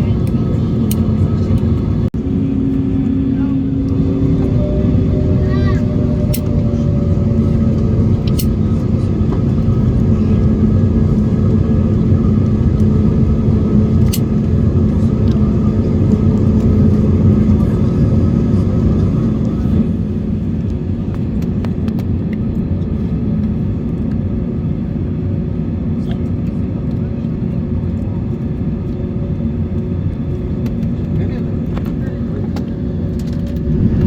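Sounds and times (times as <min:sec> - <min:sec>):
low hum: 0:00.0 - 0:27.3, 0:27.9 - 0:34.0
aircraft cabin engine rumble: 0:00.0 - 0:34.0.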